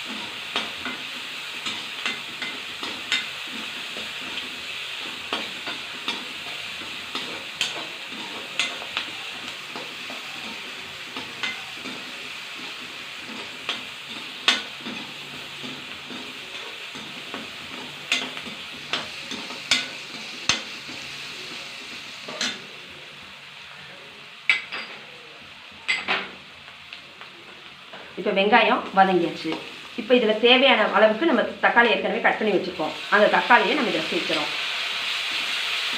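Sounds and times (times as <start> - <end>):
spoon scraping and knocking pan: 0.0 - 21.1
onions sizzling in oil: 0.0 - 35.9.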